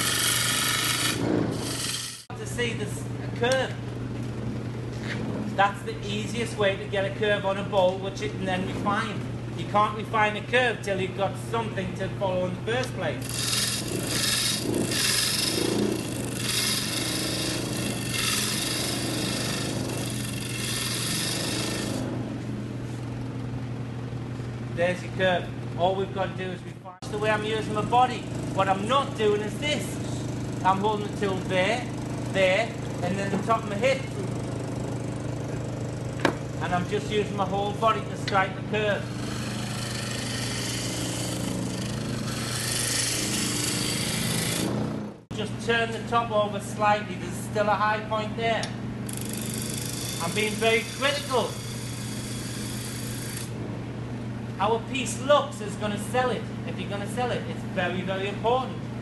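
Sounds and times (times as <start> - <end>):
gouge shaving wood: 0.0 - 2.3, 13.2 - 22.0, 39.0 - 44.8, 49.1 - 53.5
lathe motor hum: 0.0 - 2.3, 12.8 - 23.0, 27.1 - 45.3, 49.0 - 54.3
turning tool cutting wood: 0.0 - 2.3, 13.2 - 22.2, 38.2 - 45.1, 49.0 - 53.6.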